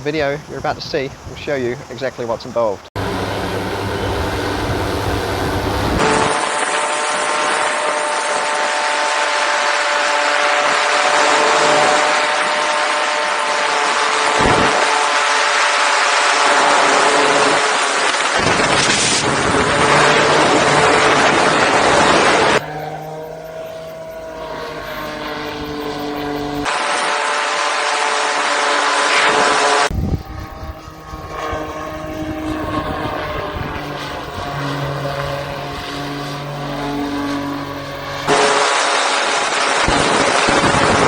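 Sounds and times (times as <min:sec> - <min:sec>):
wind rush on microphone: 0:00.0 - 0:08.4, 0:14.2 - 0:15.2, 0:16.1 - 0:22.6, 0:29.3 - 0:38.6, 0:39.3 - 0:41.0
model plane propeller engine: 0:03.0 - 0:41.0.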